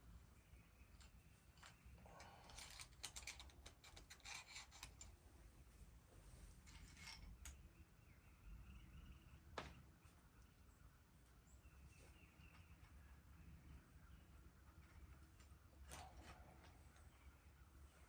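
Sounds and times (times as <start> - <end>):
faint metallic clicking and scraping: 0.7 - 7.8, 14.6 - 18.0.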